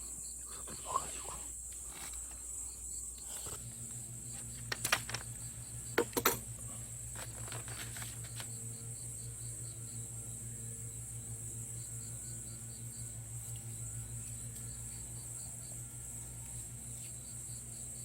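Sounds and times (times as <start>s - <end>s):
water pump humming: 1.8s - 18.0s
sharp clicks and knocks: 4.4s - 5.4s, 6.0s - 6.5s.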